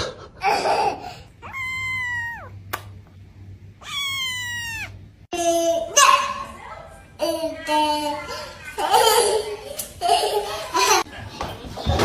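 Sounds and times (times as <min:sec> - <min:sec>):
cat meowing: 0:01.4 - 0:02.6, 0:03.8 - 0:05.0.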